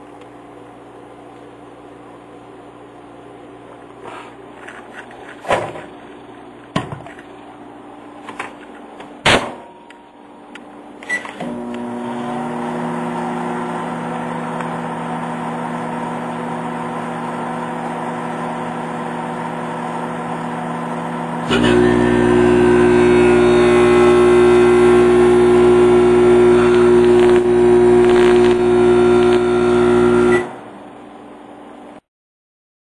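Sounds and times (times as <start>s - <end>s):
microwave oven humming: 9.8s - 31.8s
brief high tone: 21.5s - 26.9s.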